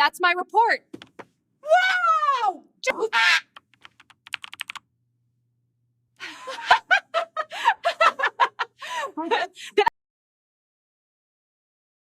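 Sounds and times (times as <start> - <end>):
snickering laughter: 6.4 - 8.8.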